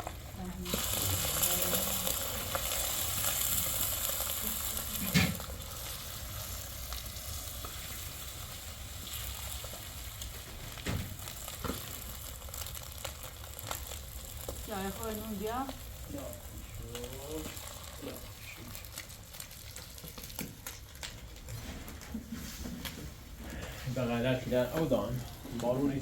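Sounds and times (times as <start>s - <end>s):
rain hissing: 0.0s - 19.7s.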